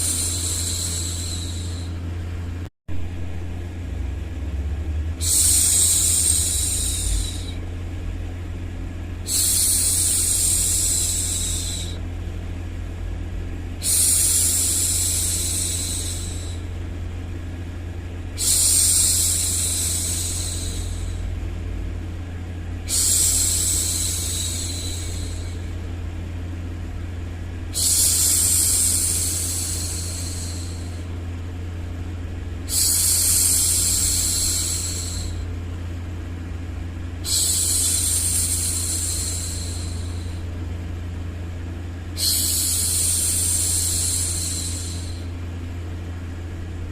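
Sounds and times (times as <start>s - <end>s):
low rumbling noise: 0.0s - 46.9s
woman shushing: 5.2s - 7.6s, 9.3s - 12.0s, 42.2s - 45.3s.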